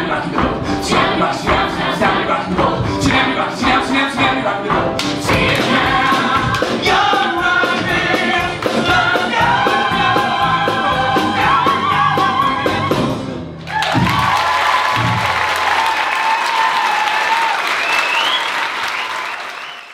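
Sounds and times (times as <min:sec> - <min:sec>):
chorus singing with live band: 0:00.0 - 0:13.3
audience applause: 0:13.7 - 0:19.9.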